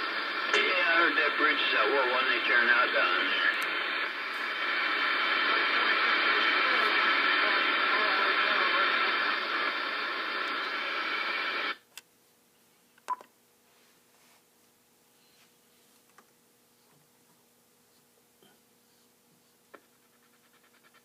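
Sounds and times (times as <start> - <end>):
hissy shortwave radio signal: 0.0 - 11.8.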